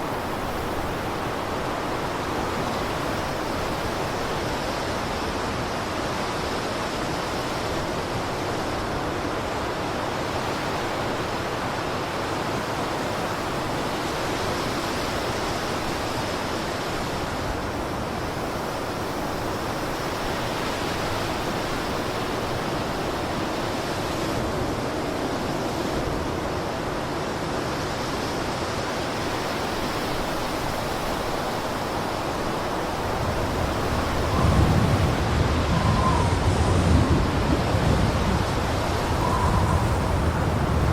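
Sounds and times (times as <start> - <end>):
blizzard wind rushing: 20.9 - 40.9.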